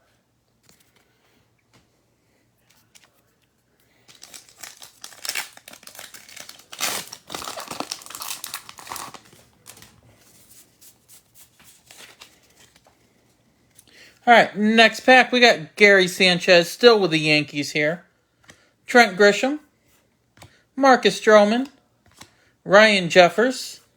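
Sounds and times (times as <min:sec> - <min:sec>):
cards rustling: 0:00.6 - 0:14.0, 0:19.8 - 0:22.4
wrapper tearing and crinkling: 0:04.1 - 0:10.0.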